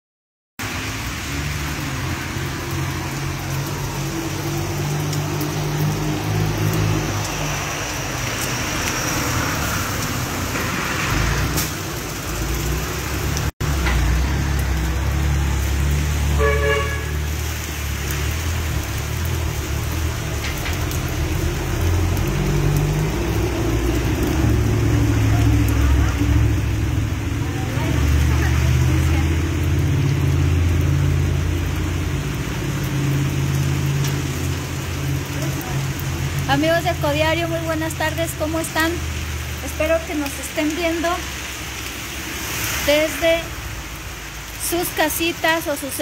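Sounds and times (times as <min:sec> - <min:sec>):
heavy rain on a street: 0:00.6 - 0:46.0
vehicle engines rumbling: 0:00.6 - 0:46.0
car horn: 0:16.3 - 0:17.3.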